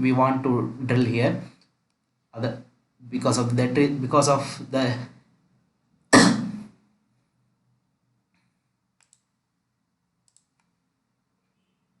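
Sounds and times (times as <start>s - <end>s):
faint clicks: 8.3s - 9.3s, 10.2s - 10.8s.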